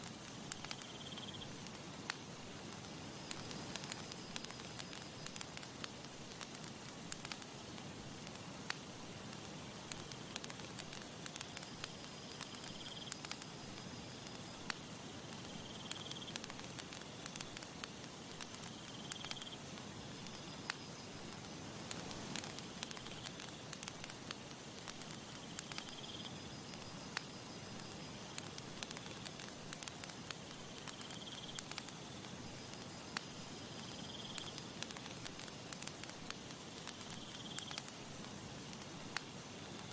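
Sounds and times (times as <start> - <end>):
campfire crackling and popping: 0.0 - 39.9
soft steady hiss: 0.0 - 39.9.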